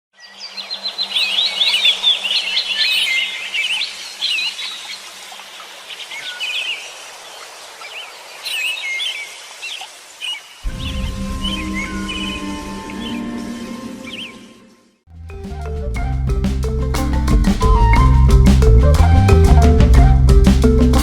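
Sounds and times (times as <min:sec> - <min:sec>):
songbirds singing: 0:00.2 - 0:14.6
music: 0:10.7 - 0:21.0.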